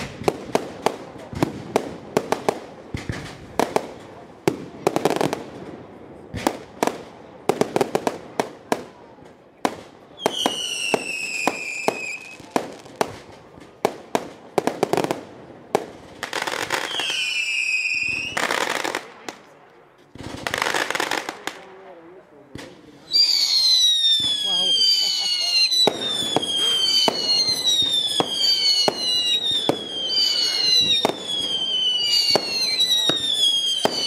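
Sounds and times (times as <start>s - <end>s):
firework bangs: 0.0s - 21.9s, 22.5s - 34.0s
descending firework whistles: 10.2s - 12.6s, 16.3s - 18.8s, 23.0s - 34.0s.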